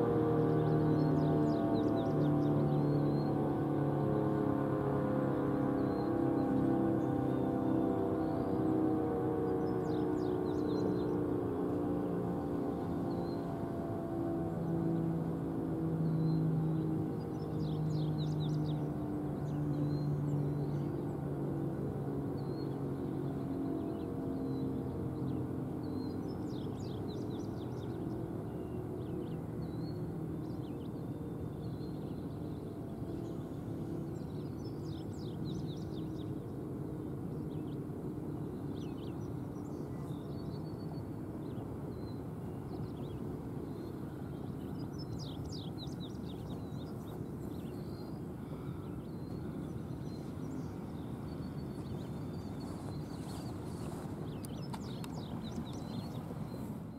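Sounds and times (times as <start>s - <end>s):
low outdoor rumble: 0.0s - 56.9s
small birds chirping: 22.4s - 56.9s.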